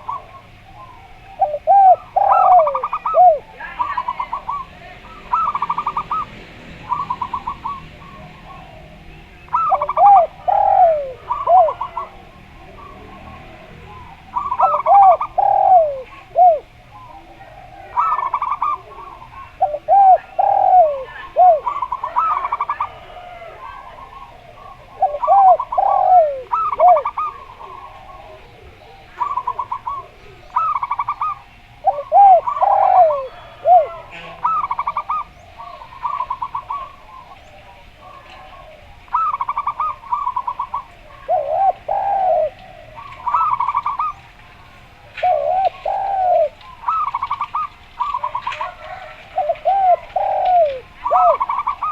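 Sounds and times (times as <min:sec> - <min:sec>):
doves staccato cooing: 0:00.0 - 0:51.9
turtle doves low arched coos: 0:00.0 - 0:51.9.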